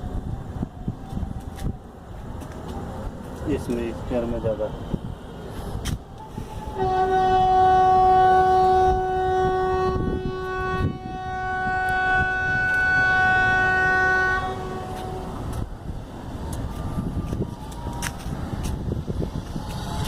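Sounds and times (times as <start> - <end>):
long steady horn blast: 6.2 - 15.7.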